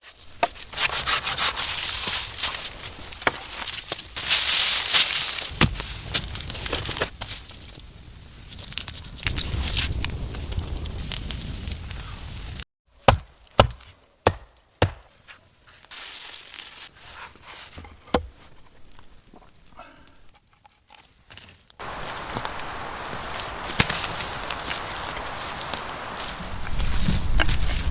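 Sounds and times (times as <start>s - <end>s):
dry leaves and branches rustling: 0.0s - 12.6s, 13.3s - 27.9s
wood being chopped: 13.0s - 15.2s, 18.1s - 18.3s.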